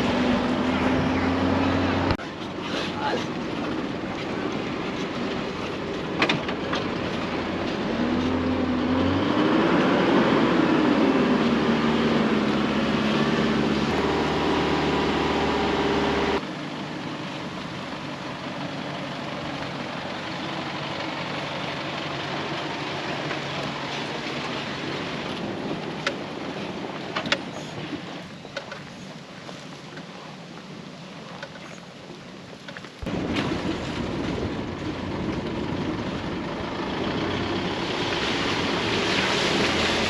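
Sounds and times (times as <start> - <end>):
engine revving: 0.0 - 2.2, 7.4 - 16.4
off-road vehicle driving on dirt: 0.0 - 40.0.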